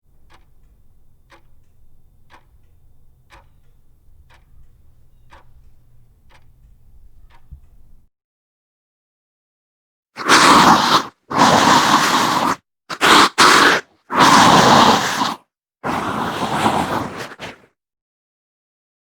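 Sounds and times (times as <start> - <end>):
sharp ticking: 0.0 - 8.0
faint low hum: 0.1 - 8.1.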